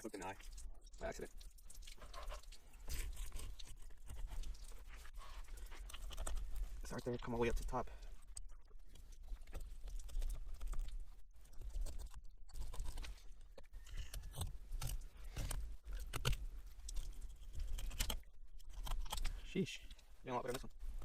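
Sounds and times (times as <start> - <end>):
knife crunching through fish: 1.7 - 6.7, 9.4 - 19.5.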